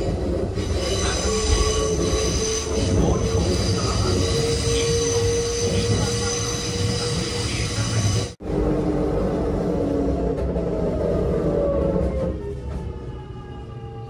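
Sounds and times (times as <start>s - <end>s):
wheels squealing on track: 0.0s - 8.4s
train wheels rumbling on rails: 0.0s - 14.0s.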